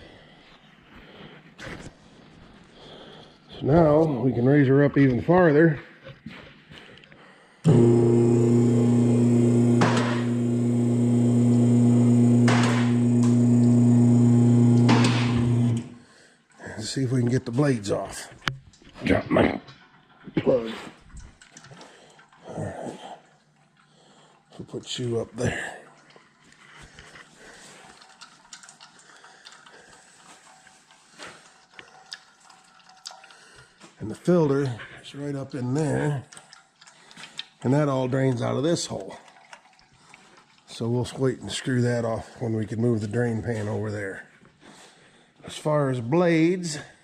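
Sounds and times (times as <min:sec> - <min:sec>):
lift motor humming: 0:07.7 - 0:16.0
oil trickling into pan: 0:23.2 - 0:34.7, 0:36.0 - 0:41.6.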